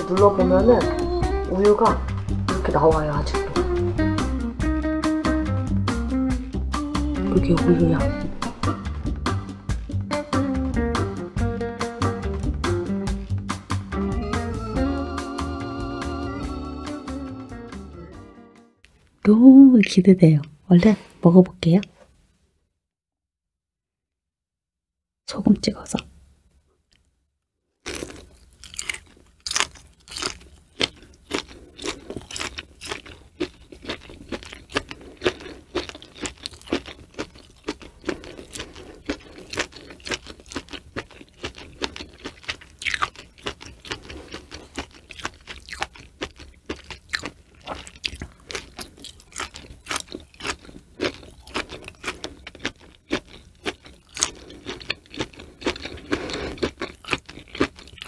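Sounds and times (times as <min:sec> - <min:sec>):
crisp crunching while chewing: 0:27.8 - 0:58.0.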